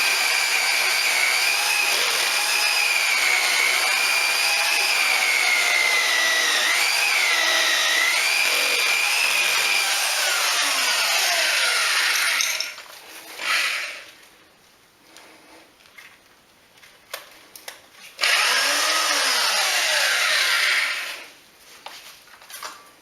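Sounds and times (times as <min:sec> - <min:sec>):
electric drill boring into wall: 0:00.0 - 0:14.1, 0:18.2 - 0:21.3.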